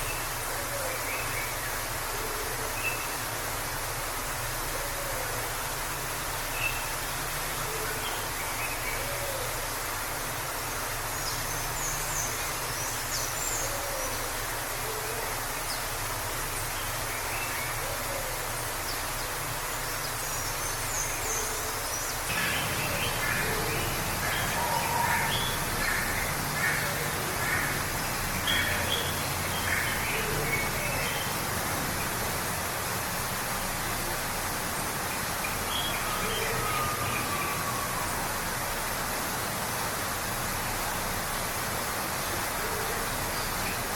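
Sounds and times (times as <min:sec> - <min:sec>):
waterfall roaring: 0:00.0 - 0:43.9
forest birds chirping: 0:15.5 - 0:32.3.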